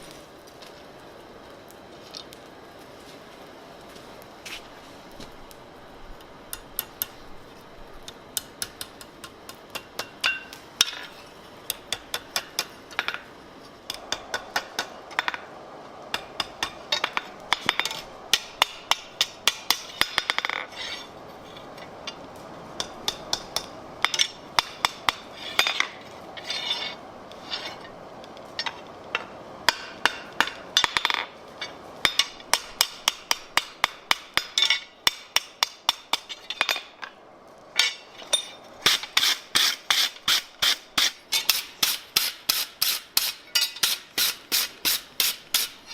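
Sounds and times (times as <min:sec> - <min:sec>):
hammer striking steel on anvil: 0:08.4 - 0:11.1, 0:16.1 - 0:20.6, 0:22.8 - 0:25.9, 0:28.6 - 0:31.2, 0:32.1 - 0:36.9, 0:37.8 - 0:45.9.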